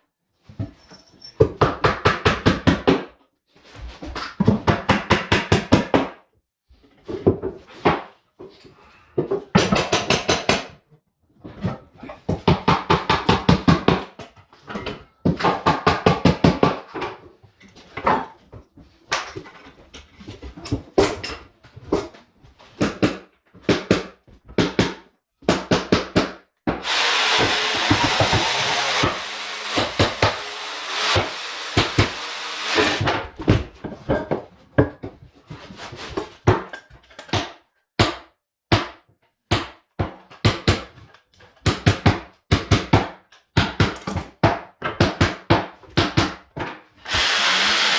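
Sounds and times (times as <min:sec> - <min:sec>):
rapid tool tapping on floor: 0:22.8 - 0:33.1.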